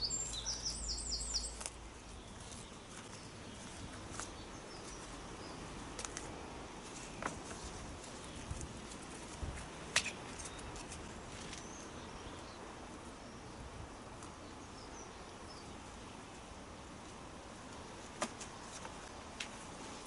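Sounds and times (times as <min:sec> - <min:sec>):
faint bird chirps: 0:00.0 - 0:01.6
steady background hiss: 0:00.0 - 0:20.0.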